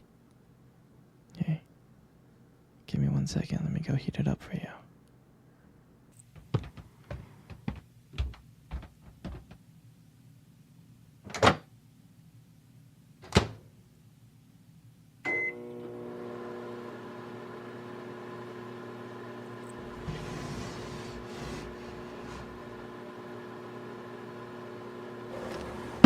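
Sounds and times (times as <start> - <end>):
microwave oven humming: 15.2 - 26.0.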